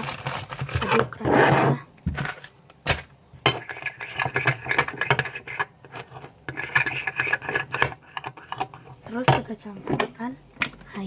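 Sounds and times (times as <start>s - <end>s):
utensil scraping container: 3.5s - 9.3s.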